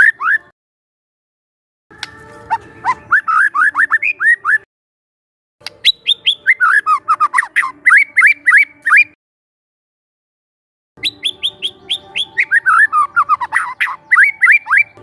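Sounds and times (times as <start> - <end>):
bird singing whistled notes: 0.0 - 0.5, 2.0 - 4.6, 5.6 - 9.2, 11.0 - 15.0.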